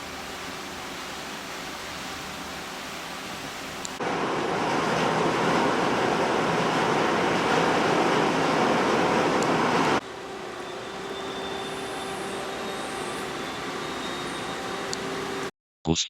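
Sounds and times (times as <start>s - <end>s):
sea water rushing: 3.7s - 10.0s.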